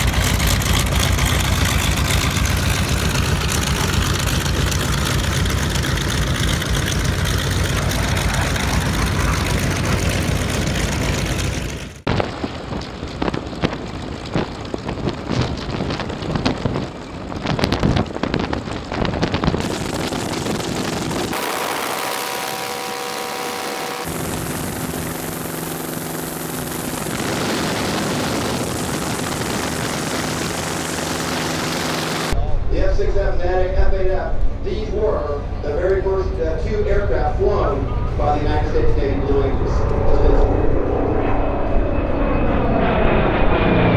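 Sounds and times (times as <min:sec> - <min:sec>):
crackling engine sound: 0:00.0 - 0:32.4
aircraft engine drone: 0:00.0 - 0:43.9.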